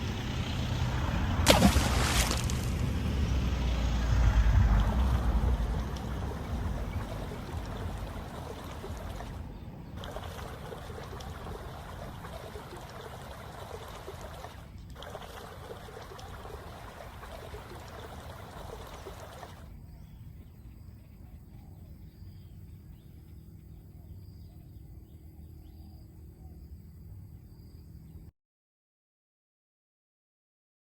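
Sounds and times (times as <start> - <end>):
floodwater rushing: 0.9 - 19.7.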